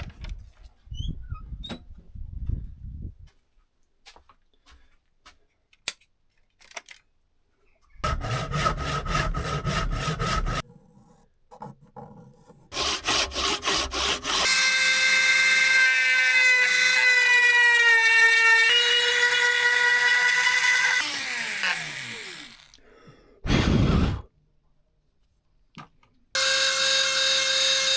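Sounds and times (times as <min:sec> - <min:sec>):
rasping strokes on wood: 0:08.0 - 0:14.6
power tool motor whining: 0:14.4 - 0:22.8.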